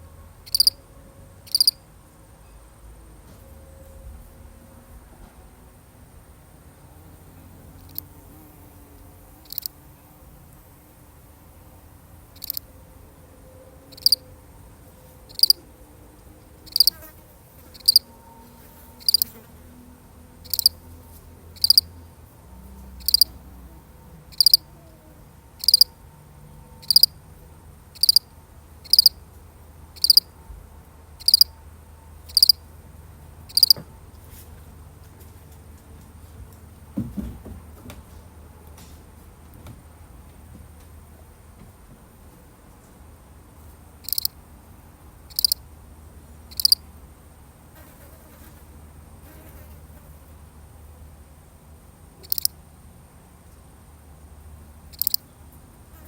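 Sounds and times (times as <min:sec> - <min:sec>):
cricket chirping: 0:00.4 - 0:00.8, 0:01.4 - 0:02.9, 0:07.2 - 0:08.2, 0:09.4 - 0:09.8, 0:12.2 - 0:12.8, 0:13.8 - 0:19.5, 0:20.4 - 0:20.9, 0:21.5 - 0:22.0, 0:22.7 - 0:24.8, 0:25.5 - 0:27.2, 0:27.9 - 0:29.2, 0:30.0 - 0:30.4, 0:31.2 - 0:31.6, 0:32.3 - 0:32.7, 0:33.5 - 0:33.8, 0:44.0 - 0:44.4, 0:45.3 - 0:45.7, 0:46.4 - 0:46.9, 0:52.1 - 0:52.6, 0:54.9 - 0:55.3.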